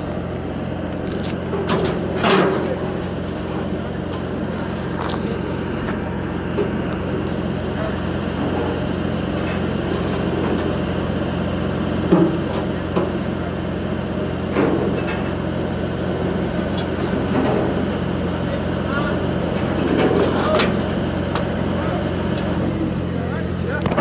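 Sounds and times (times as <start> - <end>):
machine engine running: 0.0 - 14.5.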